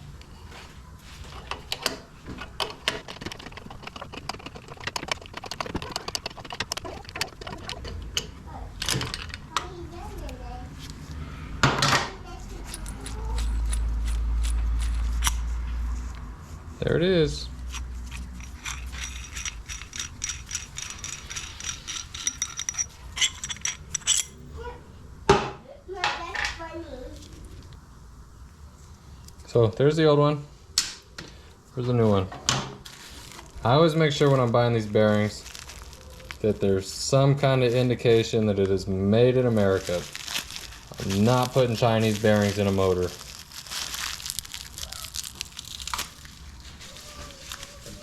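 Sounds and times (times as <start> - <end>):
ratchet wrench clicking: 17.7 - 24.3.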